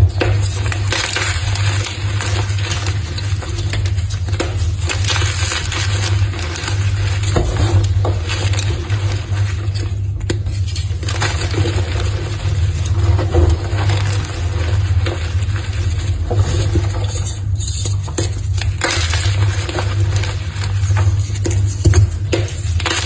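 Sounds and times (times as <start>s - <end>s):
chalk being crushed: 0.0s - 23.0s.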